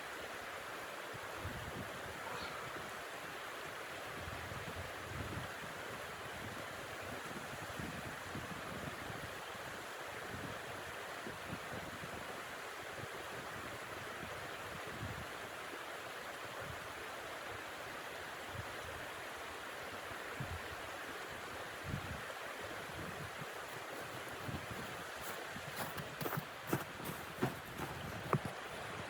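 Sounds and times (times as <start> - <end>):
rushing wind of snow storm: 21.9 - 29.0
wind gusts buffeting microphone: 22.9 - 29.0.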